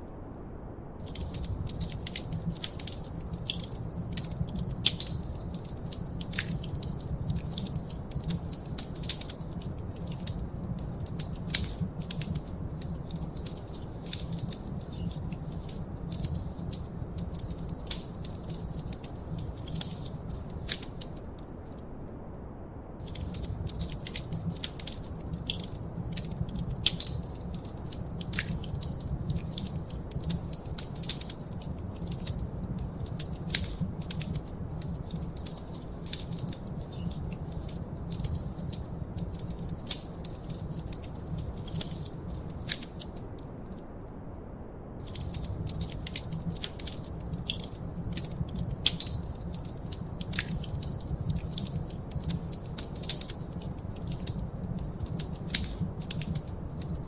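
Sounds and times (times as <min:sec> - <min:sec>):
wood fire crackling: 0:01.0 - 0:22.0, 0:23.0 - 0:44.0, 0:45.0 - 0:57.0.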